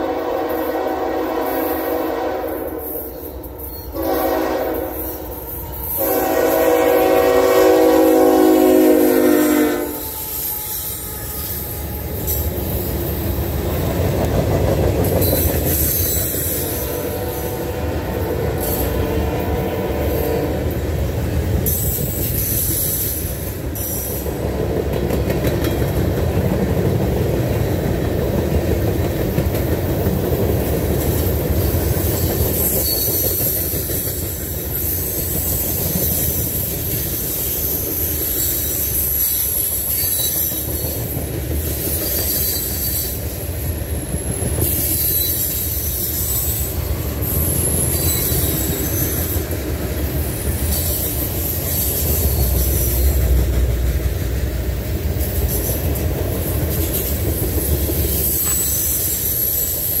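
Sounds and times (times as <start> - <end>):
steel wheels rumbling on rail: 0.0 - 60.0
high-pitched wheel squeal: 9.4 - 13.1, 32.2 - 33.5, 38.2 - 40.9, 44.1 - 49.4.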